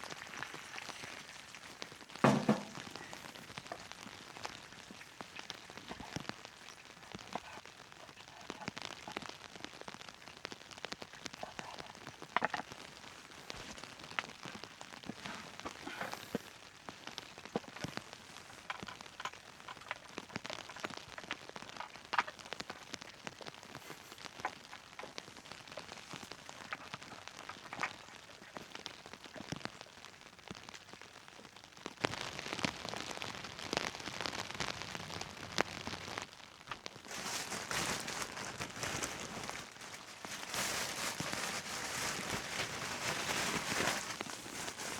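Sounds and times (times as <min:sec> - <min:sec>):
raindrop hits: 0:00.0 - 0:07.5
rain falling on a tent: 0:00.0 - 0:44.9.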